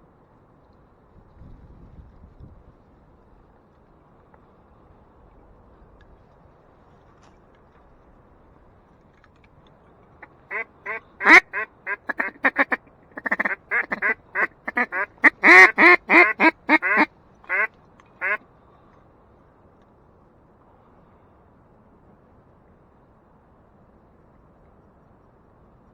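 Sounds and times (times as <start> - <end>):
duck quacking: 10.5 - 18.4.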